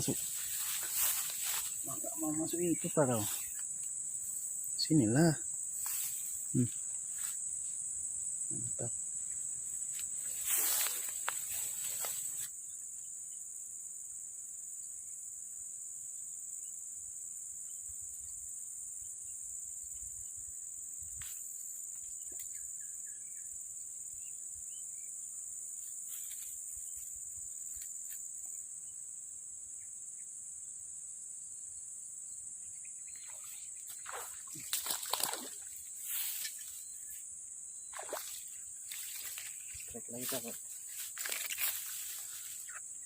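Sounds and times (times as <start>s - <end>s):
crickets chirring: 0.0s - 43.0s
water splashing and sloshing: 33.2s - 35.8s, 37.9s - 39.8s.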